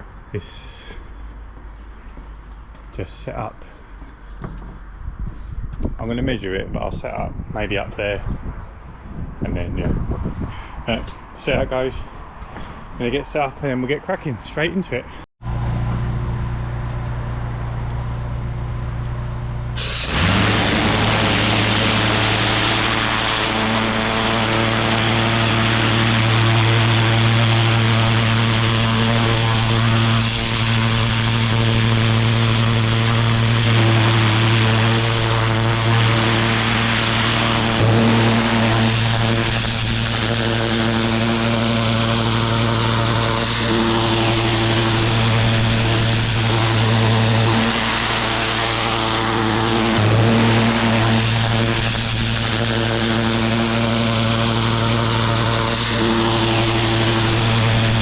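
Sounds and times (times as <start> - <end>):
pressure washer engine running: 19.7 - 58.0
high-pressure water spray hiss: 19.8 - 41.5, 50.5 - 58.0.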